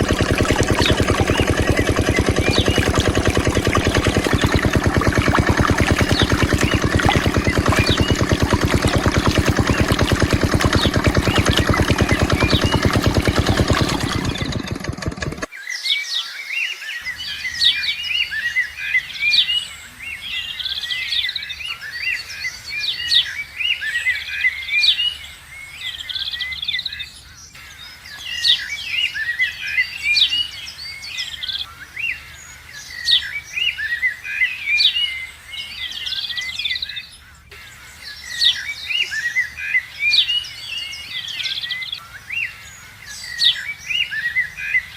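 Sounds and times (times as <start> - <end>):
birds chirping: 0.0 - 15.5
diesel pump engine running: 0.0 - 15.5.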